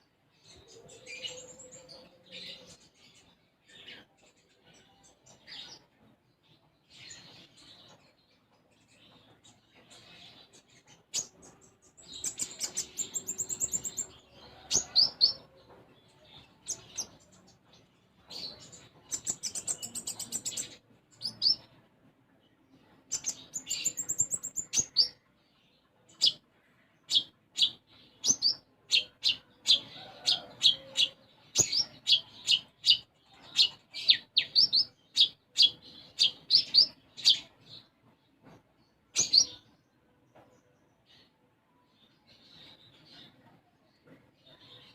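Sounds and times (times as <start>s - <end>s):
songbird trilling and chirping: 9.1s - 21.8s, 22.8s - 38.0s, 39.1s - 39.8s.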